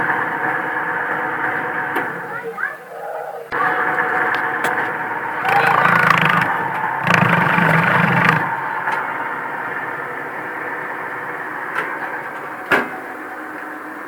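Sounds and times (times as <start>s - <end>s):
sharp clicks: 5.4s - 8.5s
washing machine motor humming: 5.4s - 8.6s.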